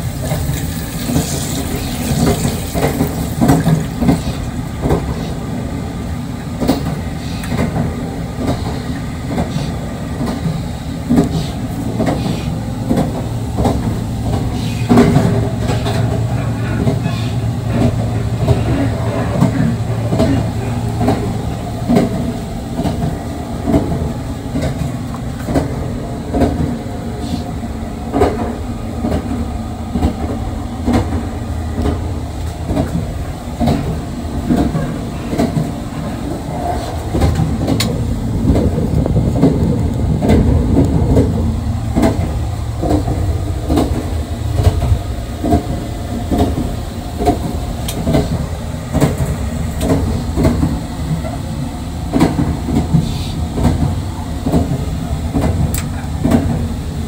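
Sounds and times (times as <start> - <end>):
wheels clicking on track: 0.0 - 5.3, 28.1 - 57.0
train running rumble: 0.0 - 57.0.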